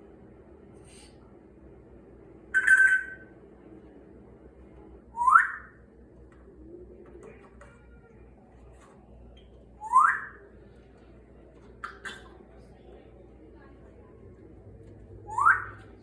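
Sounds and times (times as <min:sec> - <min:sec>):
parrot whistling: 0:02.6 - 0:03.3, 0:05.1 - 0:05.8, 0:09.8 - 0:10.4, 0:15.3 - 0:15.8.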